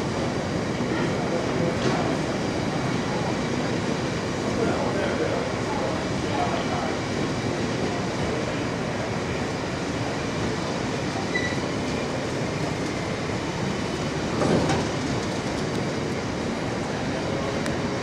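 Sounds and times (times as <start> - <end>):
steel wheels on rail: 10.0 - 18.0.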